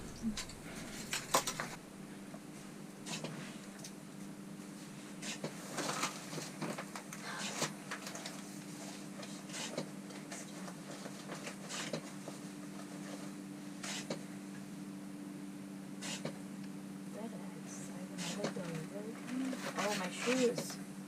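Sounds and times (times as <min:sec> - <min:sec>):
low steady hum: 0:00.0 - 0:21.0
faint clicks and rustles: 0:03.1 - 0:14.1, 0:18.2 - 0:20.8.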